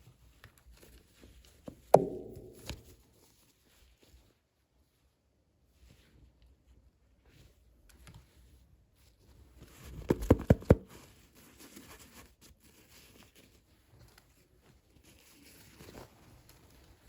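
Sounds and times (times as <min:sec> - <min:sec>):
sharp taps or clicks: 0:02.0 - 0:02.9.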